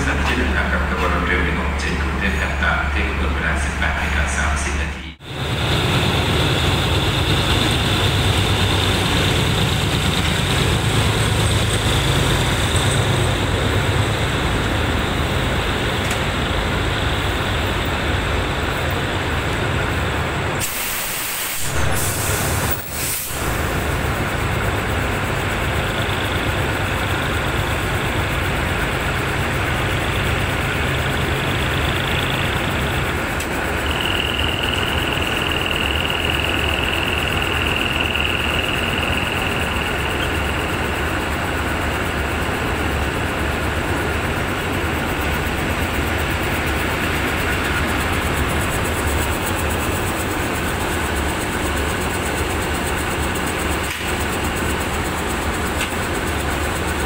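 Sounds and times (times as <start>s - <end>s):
diesel locomotive engine rumble: 0.0s - 57.0s
high-pitched whine: 29.1s - 57.0s.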